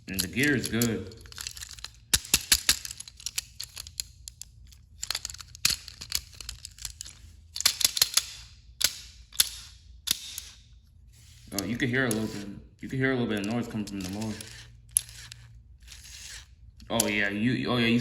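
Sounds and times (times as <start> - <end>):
toy train clicks and taps: 0.1 - 10.6, 13.4 - 17.1.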